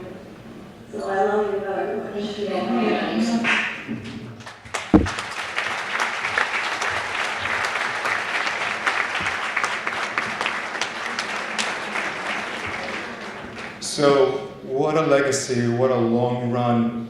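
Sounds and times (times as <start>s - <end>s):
audience applauding: 4.4s - 14.3s
sharp knock: 4.9s - 5.3s.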